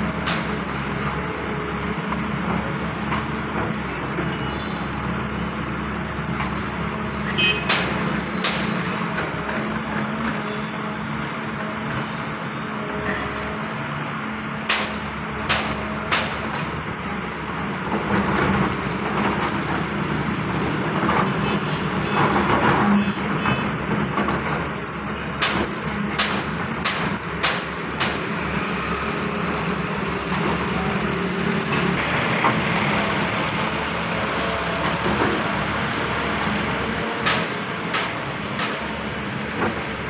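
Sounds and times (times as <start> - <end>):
diesel engine running: 0.0 - 40.0
sharp knocks: 25.4 - 28.3, 37.2 - 38.9.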